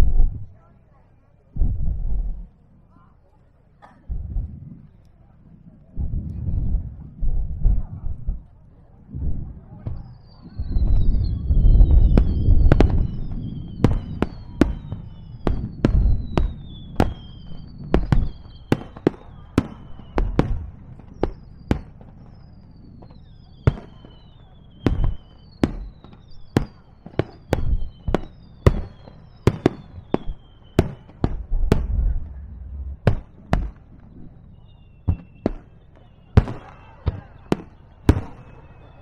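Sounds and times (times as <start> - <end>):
low firework booms: 4.1 - 4.9, 6.0 - 39.0
fireworks bangs: 9.4 - 39.0
firework whistles falling in pitch: 10.0 - 39.0.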